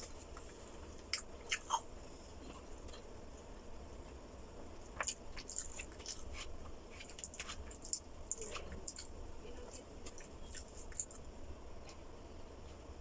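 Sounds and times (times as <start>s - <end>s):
person chewing food: 0.0s - 3.1s, 4.8s - 9.2s, 9.8s - 11.2s.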